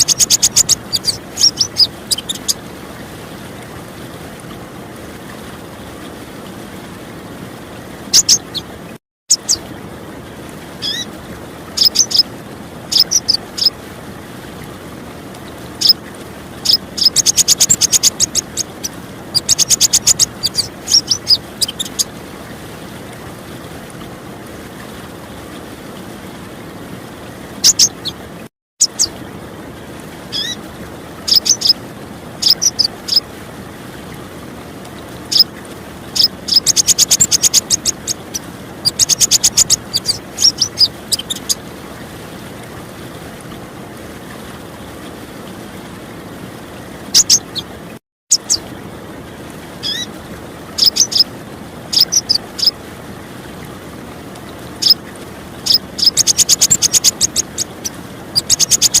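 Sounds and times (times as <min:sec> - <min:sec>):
bird chips and chattering trills: 0:00.0 - 0:02.6, 0:08.2 - 0:08.6, 0:11.8 - 0:12.3, 0:12.9 - 0:13.7, 0:16.6 - 0:22.1, 0:27.6 - 0:28.1, 0:31.3 - 0:31.8, 0:32.4 - 0:33.2, 0:36.2 - 0:41.6, 0:47.2 - 0:47.6, 0:50.8 - 0:51.2, 0:51.9 - 0:52.8, 0:55.7 - 0:57.7, 0:58.4 - 0:59.0
flowing water: 0:00.0 - 0:59.0.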